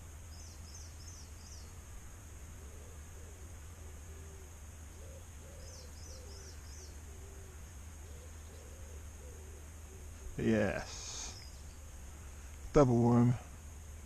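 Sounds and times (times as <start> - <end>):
steady low hum: 0.0 - 14.0
small bird high chirps: 0.3 - 1.8, 5.0 - 7.3, 11.0 - 11.9
low cooing bird call: 0.3 - 12.0.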